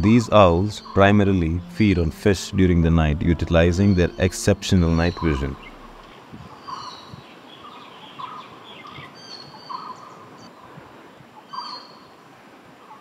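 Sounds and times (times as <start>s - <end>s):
bird repeating low note: 0.0s - 7.1s.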